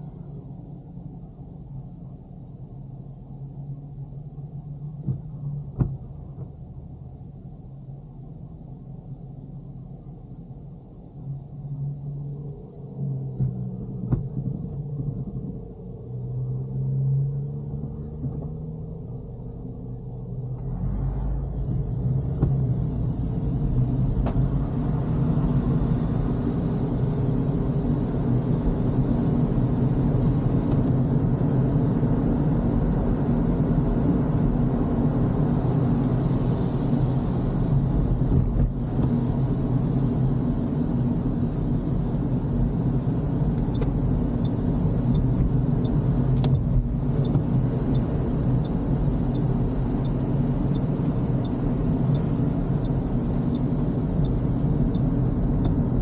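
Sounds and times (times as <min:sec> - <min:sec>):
engine and tyre rumble: 0:00.0 - 0:56.0
light regular ticking: 0:43.6 - 0:56.0.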